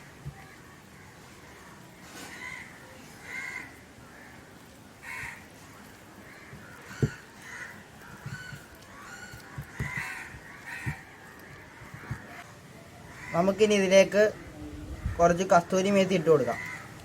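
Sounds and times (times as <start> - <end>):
crows cawing: 2.0 - 12.4, 13.1 - 14.5, 16.2 - 17.0
dull knocks: 6.5 - 7.3, 9.4 - 11.1.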